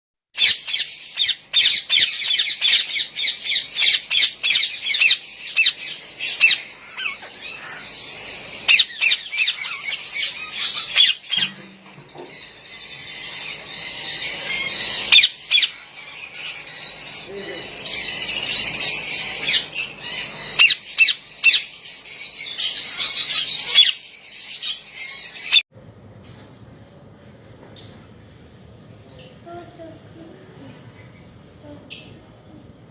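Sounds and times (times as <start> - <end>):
parrots squawking: 0.4 - 25.6.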